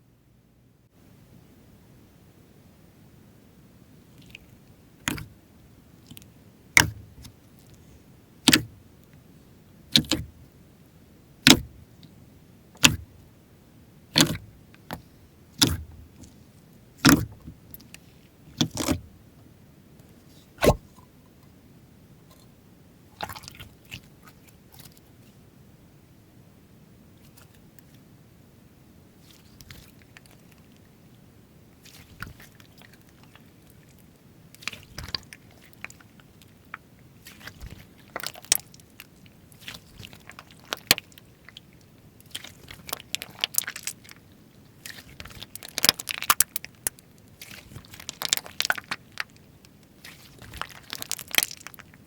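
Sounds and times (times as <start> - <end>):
slime popping: 5.0 - 5.3, 14.1 - 15.0, 15.6 - 15.9, 47.4 - 49.3, 50.0 - 51.9
slime crackling: 14.1 - 16.4, 31.8 - 34.0, 34.6 - 44.2, 44.8 - 52.0.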